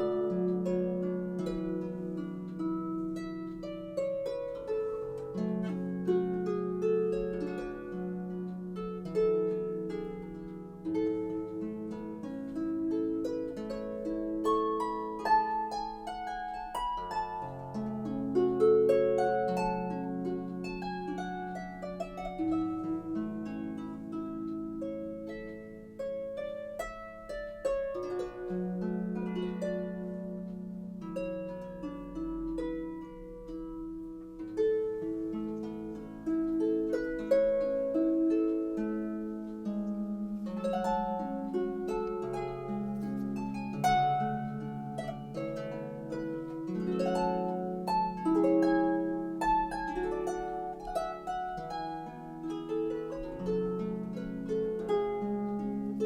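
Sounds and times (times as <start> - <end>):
solo harp music: 0.0 - 56.0.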